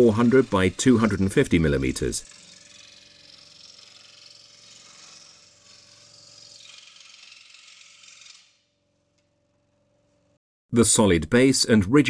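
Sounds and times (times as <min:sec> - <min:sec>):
scroll saw blade rasping: 0:00.0 - 0:08.7.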